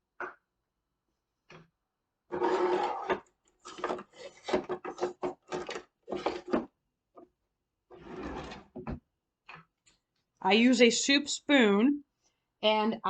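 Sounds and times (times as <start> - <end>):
drawer sliding: 2.3 - 6.7, 7.9 - 9.0
rummaging scrapes and knocks: 2.3 - 6.7, 7.9 - 8.9.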